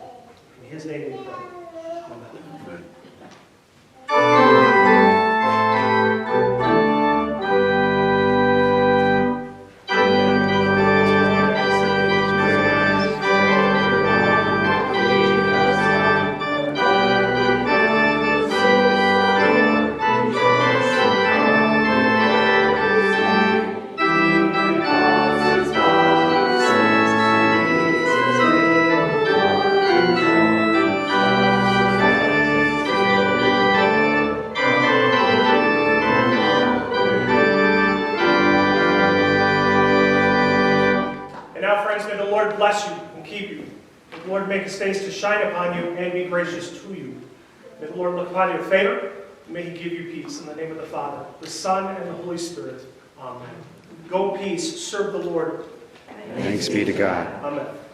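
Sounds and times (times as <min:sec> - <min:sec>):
church organ playing chords: 0:04.1 - 0:41.4.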